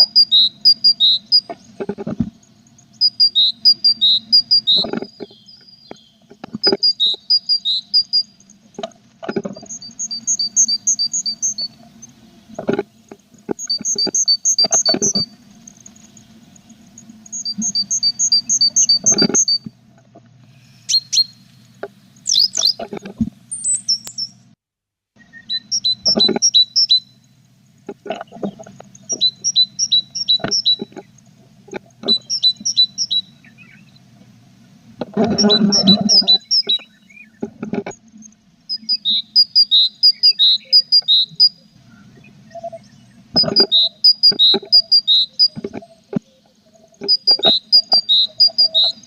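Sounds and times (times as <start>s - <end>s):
nestlings chirping: 0.0s - 8.6s, 9.6s - 12.6s, 13.6s - 19.7s, 20.6s - 22.9s, 23.5s - 24.4s, 25.2s - 31.3s, 31.9s - 34.1s, 35.3s - 37.4s, 38.1s - 49.0s
low steady hum: 0.0s - 24.6s, 25.2s - 49.0s.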